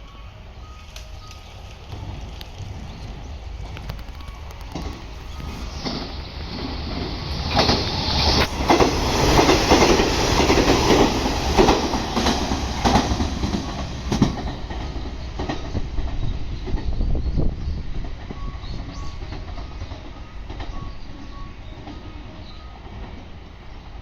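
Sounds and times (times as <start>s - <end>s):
train rumble: 0.0s - 24.0s
train wheels clattering over joints: 0.8s - 17.1s.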